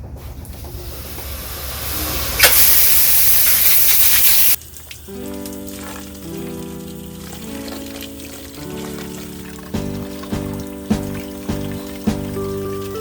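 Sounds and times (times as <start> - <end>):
water spraying from leaking pipe: 0.4 - 13.0
sharp click: 2.4 - 4.5
music: 5.1 - 13.0.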